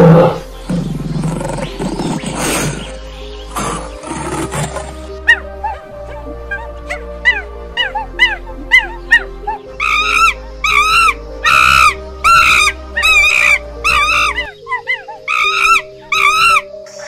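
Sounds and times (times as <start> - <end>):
soft background music: 0.0 - 17.0
animal yelping: 3.5 - 17.0.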